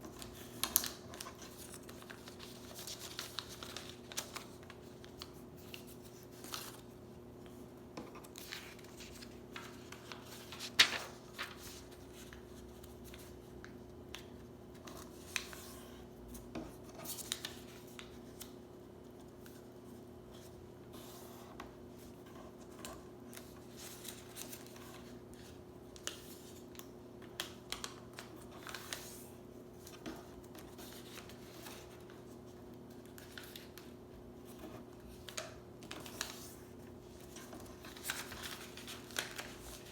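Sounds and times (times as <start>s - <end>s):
paper being folded and creased: 0.0s - 13.3s, 22.0s - 39.9s.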